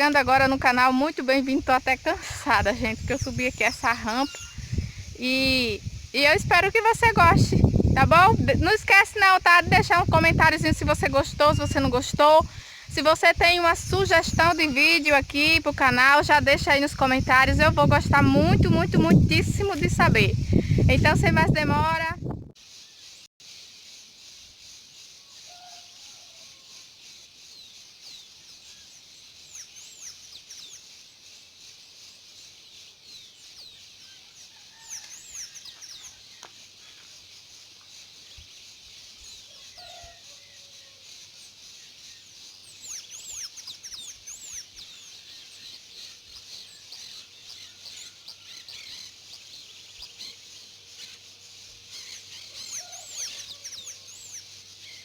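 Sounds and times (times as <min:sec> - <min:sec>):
high-pitched bird chorus: 0:00.0 - 0:55.0
songbirds chirping: 0:00.0 - 0:55.0
faint lower bird calls: 0:03.0 - 0:05.2, 0:25.2 - 0:26.9, 0:39.2 - 0:41.0, 0:51.8 - 0:55.0.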